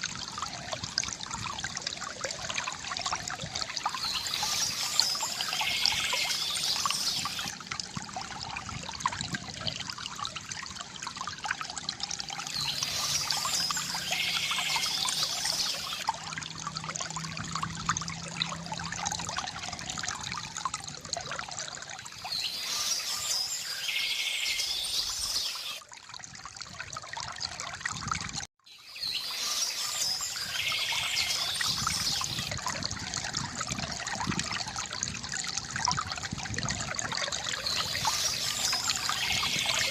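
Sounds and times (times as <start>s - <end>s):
water trickling from bamboo fountain: 0.0s - 39.9s
birds chirping: 4.0s - 7.5s, 28.8s - 32.5s.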